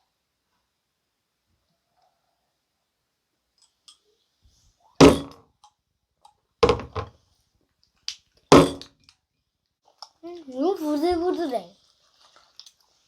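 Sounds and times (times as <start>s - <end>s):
dull thumps: 5.0s - 5.4s, 6.6s - 7.1s, 8.5s - 8.9s
small knock: 6.6s - 7.1s.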